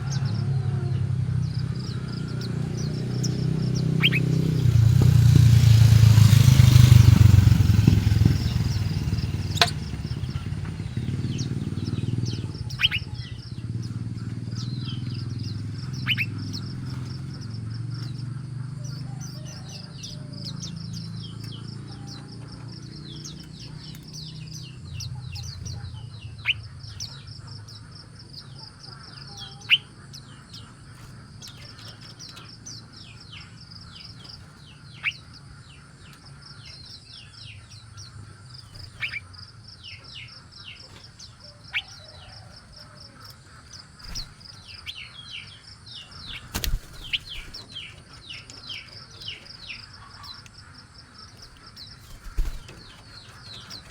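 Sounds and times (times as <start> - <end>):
small birds chirping: 0.0 - 53.9
downward-sliding bird calls: 43.9 - 53.9.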